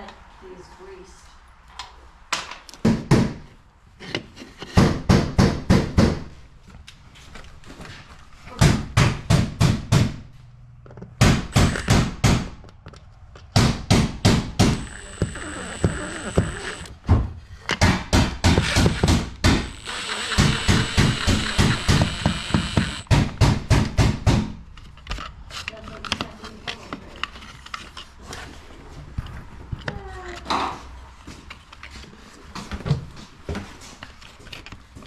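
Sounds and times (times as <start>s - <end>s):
faint high whine: 14.7s - 16.9s.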